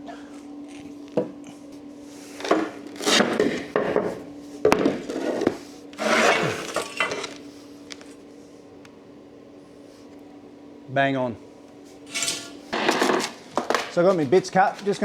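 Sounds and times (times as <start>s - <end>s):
faint steady hum: 0.0s - 15.0s
boards and tools knocking and scraping: 2.4s - 7.4s, 12.1s - 15.0s.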